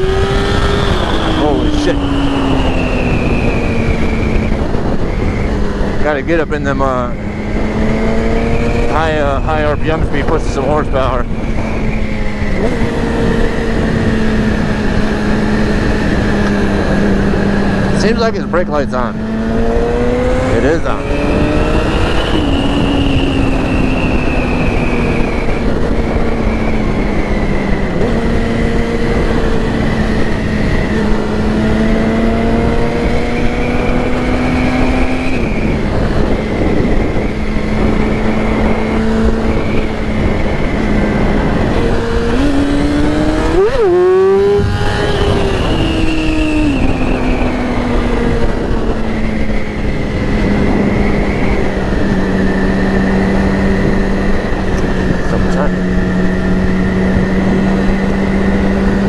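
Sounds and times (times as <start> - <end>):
motorcycle engine running: 0.0 - 59.0
wind rush: 0.0 - 59.0.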